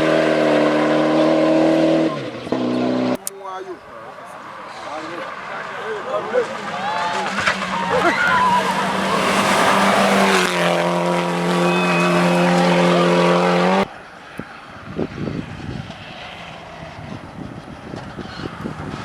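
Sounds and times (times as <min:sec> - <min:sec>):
rally car engine at high revs: 0:00.0 - 0:03.2, 0:04.7 - 0:13.9.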